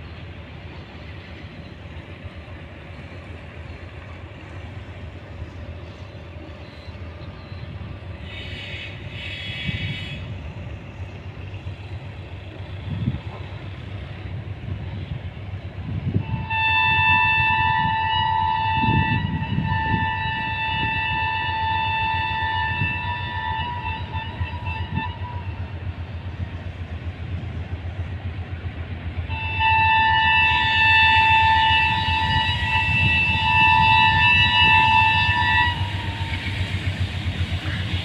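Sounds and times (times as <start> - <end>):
diesel locomotive engine rumble: 0.0 - 38.0
train horn blasts: 8.2 - 10.4, 16.0 - 25.8, 29.2 - 38.0.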